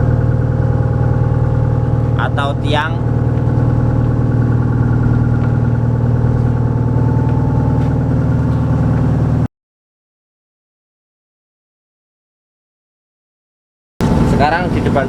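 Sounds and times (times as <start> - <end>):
engine idling: 0.0 - 9.5, 14.0 - 15.0.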